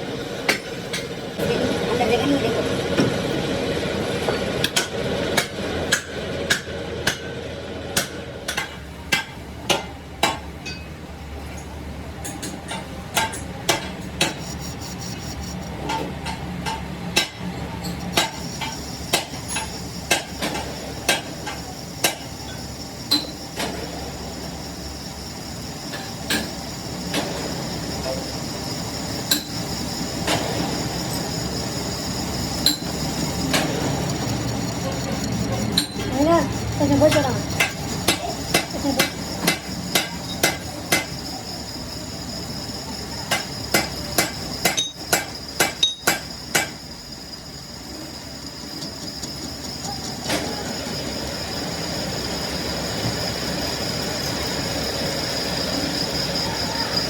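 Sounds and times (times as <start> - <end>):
workshop hum: 0.0 - 57.0
high-pitched whine: 13.3 - 16.1, 17.2 - 57.0.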